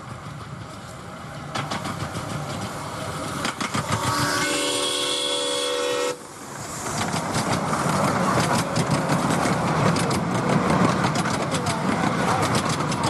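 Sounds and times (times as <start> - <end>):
wheels clattering on rail: 0.0 - 5.5, 6.2 - 13.0
steam exhaust: 0.0 - 10.0
steam locomotive chime whistle: 3.9 - 6.2.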